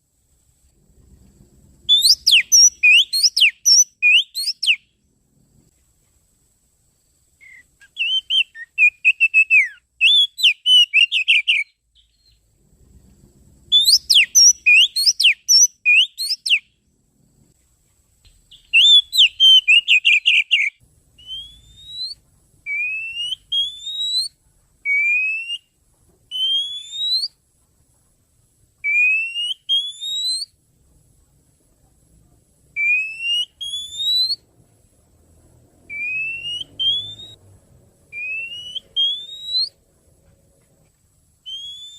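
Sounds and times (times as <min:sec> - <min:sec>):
loud rising whistles: 0:01.8 - 0:04.8, 0:13.7 - 0:16.6, 0:18.7 - 0:27.4, 0:28.8 - 0:30.6, 0:32.8 - 0:34.5, 0:35.8 - 0:39.8, 0:41.4 - 0:41.9
bird chirping song: 0:01.8 - 0:05.0, 0:07.3 - 0:12.6, 0:13.6 - 0:16.9, 0:18.2 - 0:27.4, 0:28.8 - 0:30.6, 0:32.8 - 0:34.5, 0:35.8 - 0:40.4, 0:41.4 - 0:41.9.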